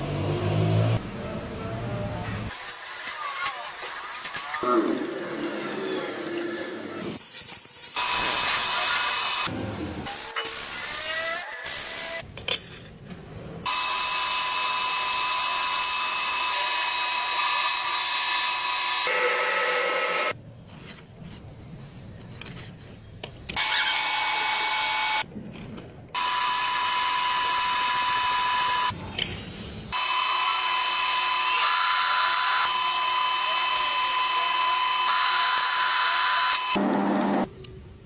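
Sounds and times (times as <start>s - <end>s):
metal lathe cutting: 13.7s - 20.4s, 30.0s - 37.4s.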